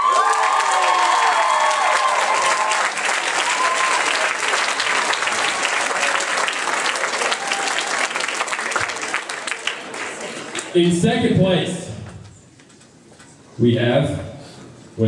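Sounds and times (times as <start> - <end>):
shrill cheers and whoops: 0.0 - 4.4, 7.2 - 8.1
audience clapping: 0.0 - 10.8.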